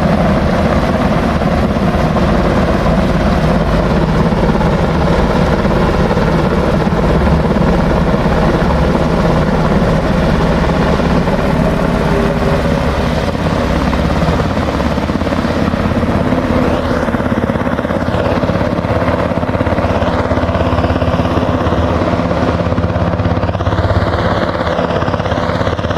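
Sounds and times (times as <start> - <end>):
helicopter rotor beating: 0.0 - 25.9.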